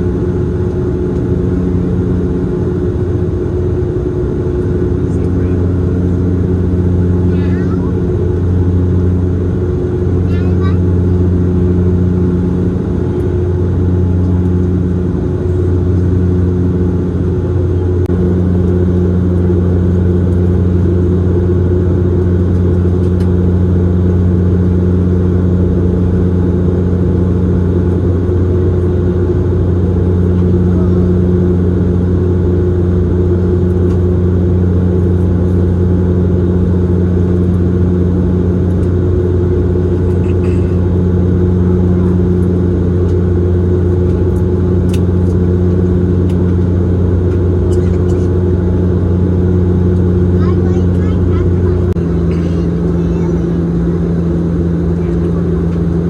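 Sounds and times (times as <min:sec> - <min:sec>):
propeller plane cabin drone: 0:00.0 - 0:56.0.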